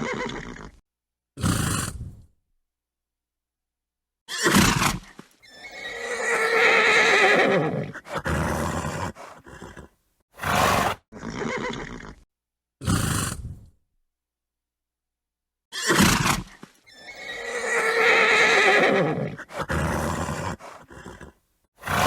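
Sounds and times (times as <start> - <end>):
horse whinnying: 0.0 - 0.8, 4.3 - 12.2, 15.7 - 22.0
horse snorting: 1.4 - 2.2, 4.4 - 12.2, 12.8 - 13.7, 15.8 - 22.0.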